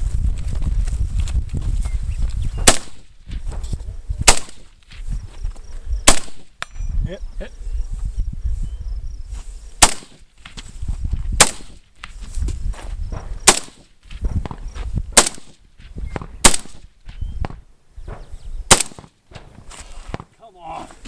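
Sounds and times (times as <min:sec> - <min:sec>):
single gunshots: 0:02.6 - 0:03.0, 0:04.2 - 0:04.7, 0:06.0 - 0:06.7, 0:09.8 - 0:10.2, 0:11.4 - 0:11.8, 0:13.4 - 0:13.9, 0:15.2 - 0:15.6, 0:16.2 - 0:16.9, 0:18.7 - 0:19.2.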